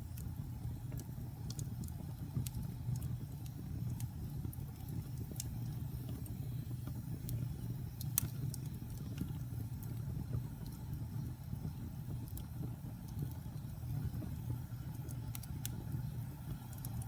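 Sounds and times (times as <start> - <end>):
fire rumbling: 0.0 - 17.0
wood fire crackling and popping: 0.0 - 17.0.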